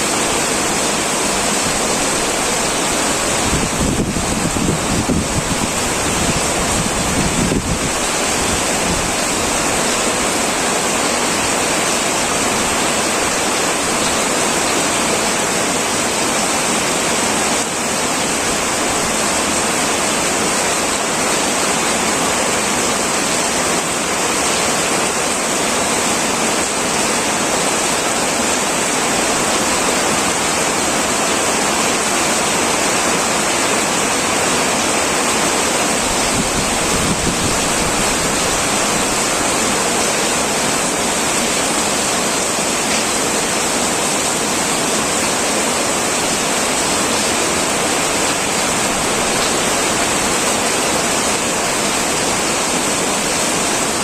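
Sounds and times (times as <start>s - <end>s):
heavy rain on a metal roof: 0.0s - 54.0s.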